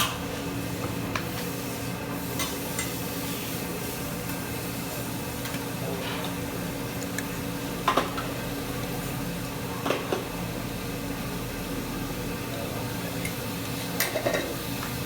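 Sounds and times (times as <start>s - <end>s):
restaurant background hum: 0.0s - 15.0s
utensils clinking on dishes: 14.0s - 14.6s.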